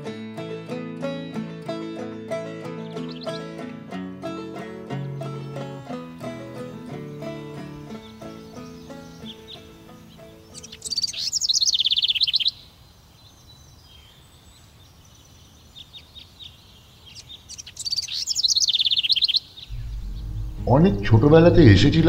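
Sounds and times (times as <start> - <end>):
songbird trilled phrase: 7.2 - 12.6, 17.1 - 20.0
faint bird chirps: 7.9 - 20.6.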